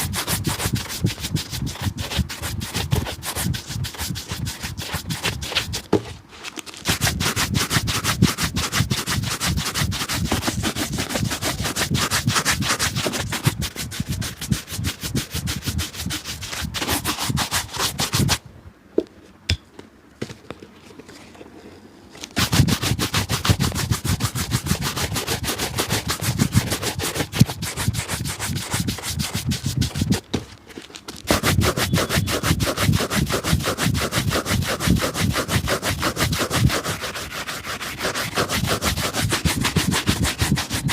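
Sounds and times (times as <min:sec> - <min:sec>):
rubbing strokes on a shoe: 0:00.0 - 0:18.4, 0:22.4 - 0:40.9.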